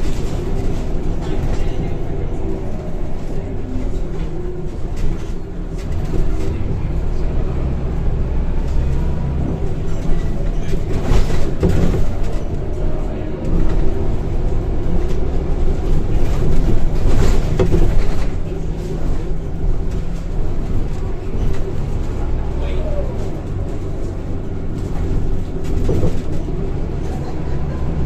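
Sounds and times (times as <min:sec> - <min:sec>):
bus engine drone: 0:00.0 - 0:28.0
road noise: 0:00.0 - 0:28.0
body rattles and knocks: 0:09.6 - 0:12.6, 0:13.6 - 0:22.2, 0:23.2 - 0:27.0.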